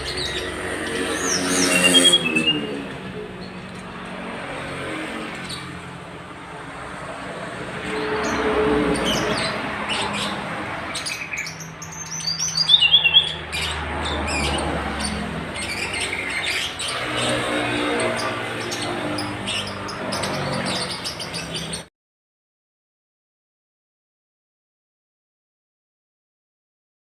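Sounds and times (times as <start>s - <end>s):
songbird chirping and singing: 0.0s - 3.8s, 7.8s - 21.9s.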